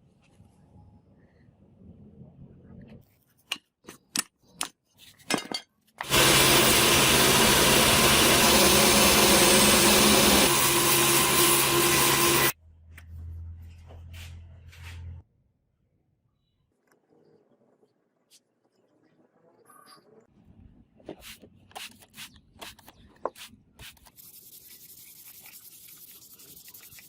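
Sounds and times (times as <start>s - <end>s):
electric power tool running: 6.0s - 12.5s.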